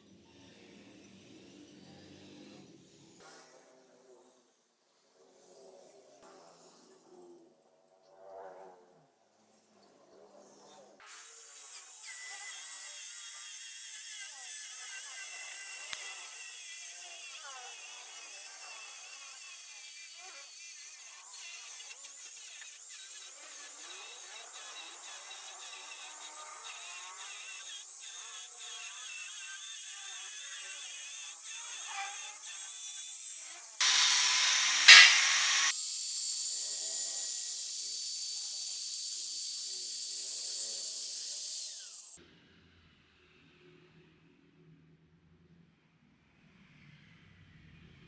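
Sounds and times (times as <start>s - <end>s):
angle grinder cutting metal: 11.1s - 35.8s.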